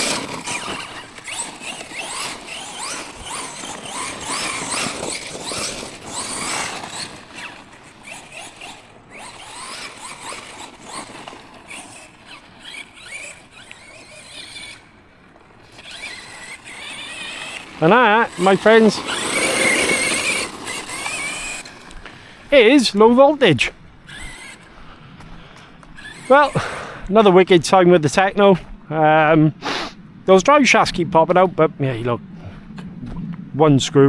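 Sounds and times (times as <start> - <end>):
electric toy truck motor whining: 0.0 - 27.1.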